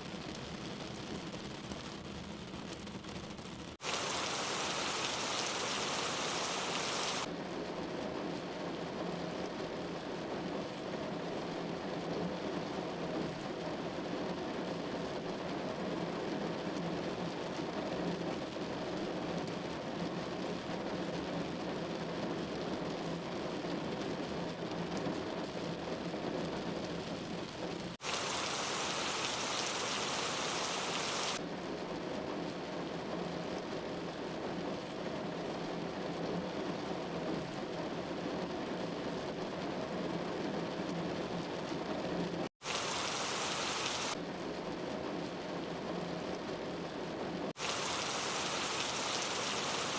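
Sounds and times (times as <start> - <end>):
rain pattering on surface: 0.0 - 49.9.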